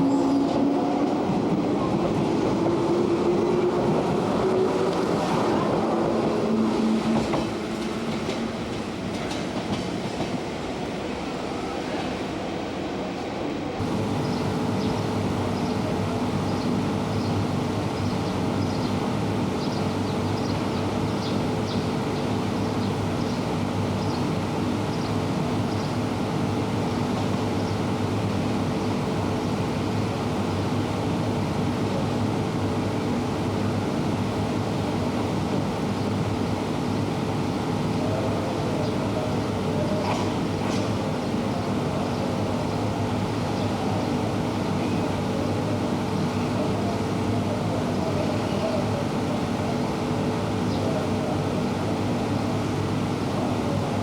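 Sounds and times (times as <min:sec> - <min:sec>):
train mechanical hum: 0:00.0 - 0:54.0.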